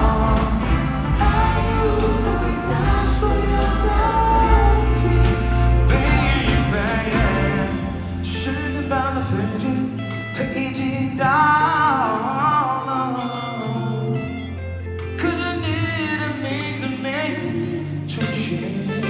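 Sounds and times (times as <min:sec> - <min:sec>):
person singing: 0:00.0 - 0:14.6
guitar: 0:00.0 - 0:19.0
live pop ballad band: 0:00.0 - 0:19.0.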